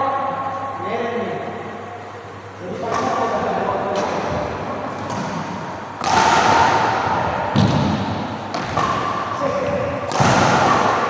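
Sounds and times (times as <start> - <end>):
rackets hitting shuttlecock: 2.8 - 11.0.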